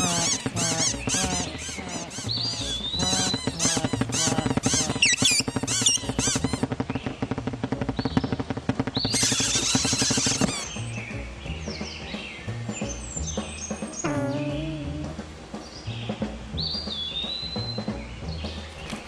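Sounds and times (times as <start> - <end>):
cartoon bird chirps: 0.0 - 6.7, 9.0 - 10.8, 14.0 - 15.1.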